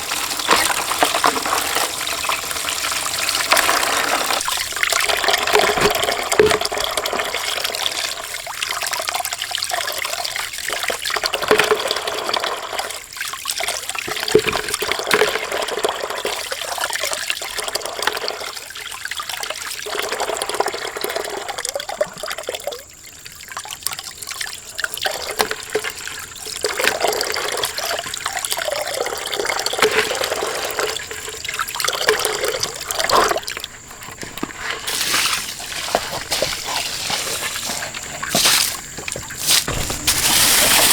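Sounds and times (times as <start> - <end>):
water running and splashing: 0.0 - 40.9.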